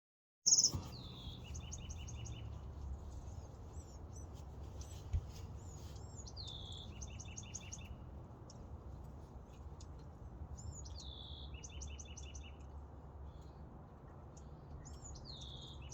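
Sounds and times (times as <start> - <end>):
bird singing trilled phrase: 0.5 - 1.8
birds chirping: 0.5 - 2.6.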